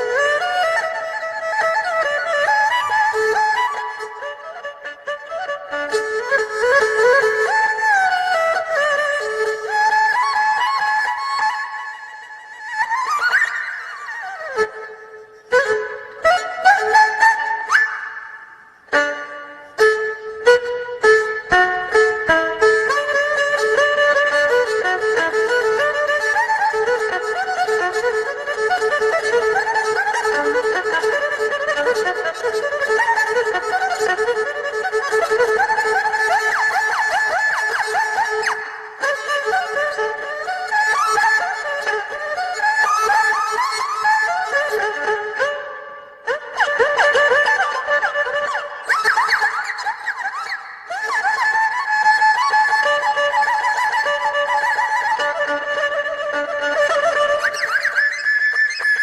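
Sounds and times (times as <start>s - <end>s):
erhu playing solo: 0.0s - 59.0s.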